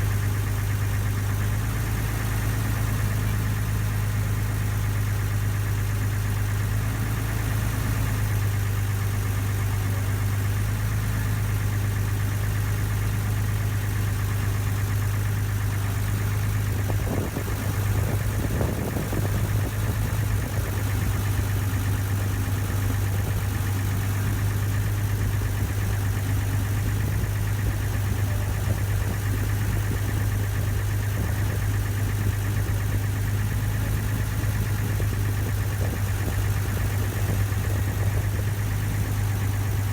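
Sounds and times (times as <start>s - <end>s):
ferry engine humming: 13.9s - 39.9s.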